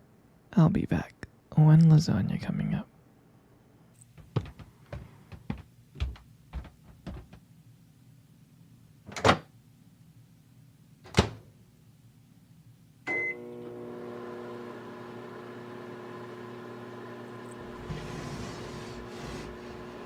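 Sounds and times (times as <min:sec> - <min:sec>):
microwave oven humming: 0:13.0 - 0:20.0
microwave beep: 0:13.1 - 0:13.8.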